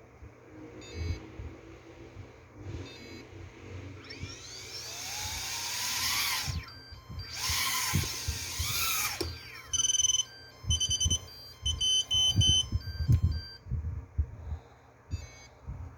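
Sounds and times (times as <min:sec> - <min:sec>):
drone motors whining: 0:00.7 - 0:13.6
high electronic beeps: 0:04.0 - 0:13.6.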